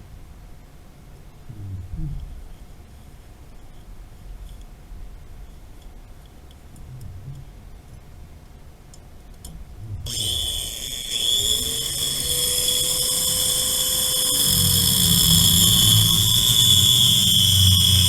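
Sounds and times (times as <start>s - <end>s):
motor whining: 10.0s - 18.0s.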